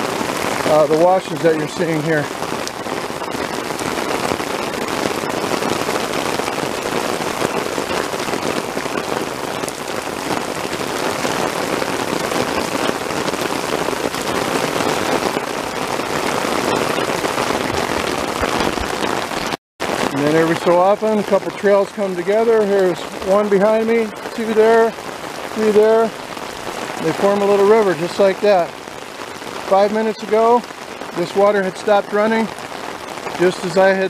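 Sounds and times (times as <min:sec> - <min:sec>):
heavy rain on rocky ground: 0:00.0 - 0:34.0.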